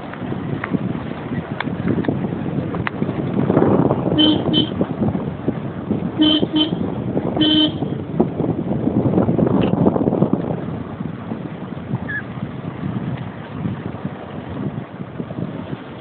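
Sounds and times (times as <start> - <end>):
wind and road noise: 0.0 - 16.0
vehicle horn honking: 4.2 - 4.8, 6.2 - 6.8, 7.4 - 7.9.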